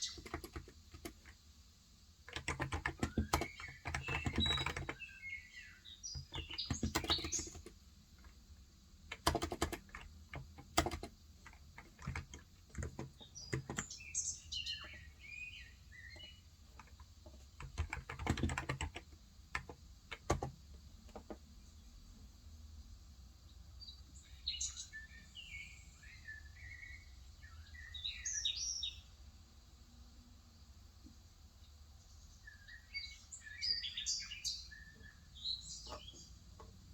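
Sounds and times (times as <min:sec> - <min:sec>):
birds chirping: 0:00.0 - 0:01.4, 0:02.3 - 0:08.4, 0:09.1 - 0:22.3, 0:23.4 - 0:29.2, 0:31.6 - 0:36.9
typing on keyboard: 0:00.0 - 0:01.4, 0:02.3 - 0:05.1, 0:06.1 - 0:08.4, 0:09.1 - 0:14.0, 0:16.1 - 0:21.4.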